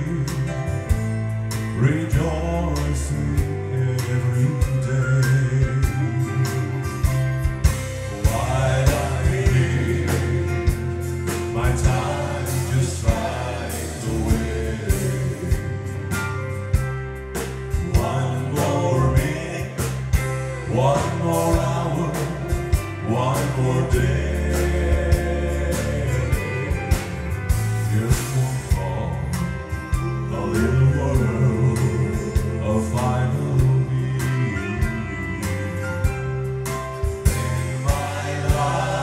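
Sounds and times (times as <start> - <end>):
bass: 0.0 - 39.0
drums: 0.0 - 39.0
live gospel band: 0.0 - 39.0
person singing: 17.8 - 20.0, 27.9 - 36.2.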